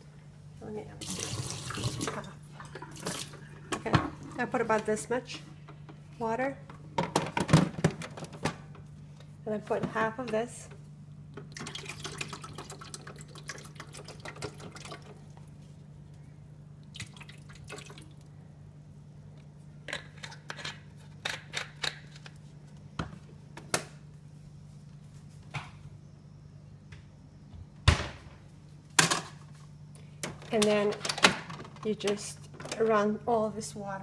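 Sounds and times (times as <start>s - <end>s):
steady low hum: 0.0s - 34.0s
liquid pouring and splashing: 1.0s - 3.4s, 11.5s - 15.2s, 16.9s - 18.3s.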